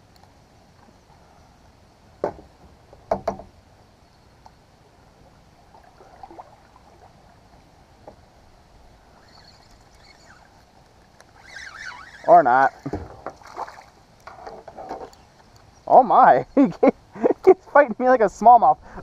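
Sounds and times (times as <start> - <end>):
knocks against kayak hull: 2.2 - 2.5, 3.1 - 3.5.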